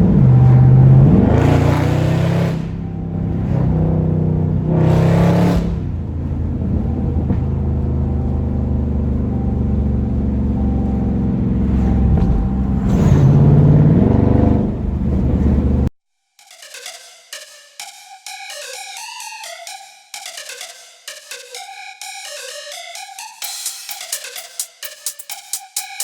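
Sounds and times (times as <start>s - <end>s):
car engine running and revving: 0.0s - 15.9s.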